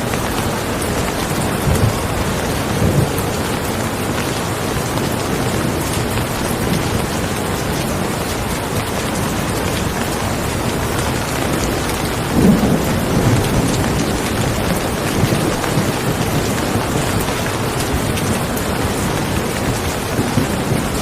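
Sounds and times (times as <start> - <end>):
low rumble of thunder: 0.0 - 21.0
steady rain falling: 0.0 - 21.0.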